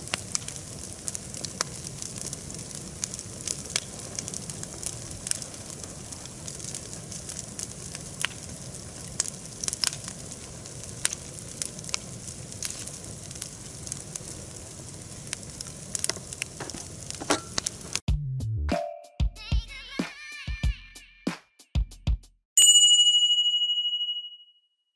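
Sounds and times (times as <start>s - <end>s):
steady fire hiss: 0.0s - 18.0s
campfire crackling and popping: 0.0s - 18.1s.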